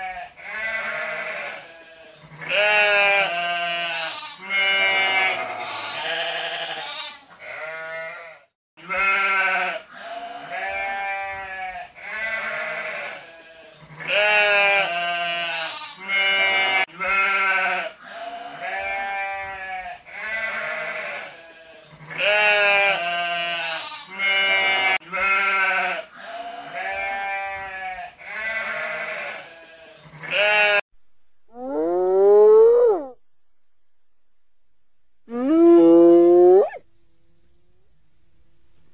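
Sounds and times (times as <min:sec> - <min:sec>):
sheep bleating: 0:00.0 - 0:30.8.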